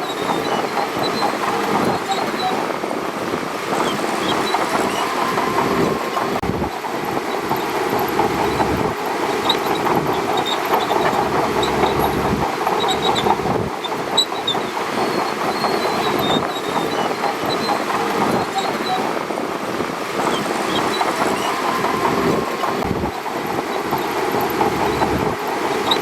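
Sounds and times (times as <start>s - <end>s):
bulldozer engine running: 0.0s - 26.0s
steel tracks clanking and squeaking: 0.0s - 26.0s
short high squeals: 3.7s - 6.3s, 7.2s - 19.2s, 20.2s - 26.0s.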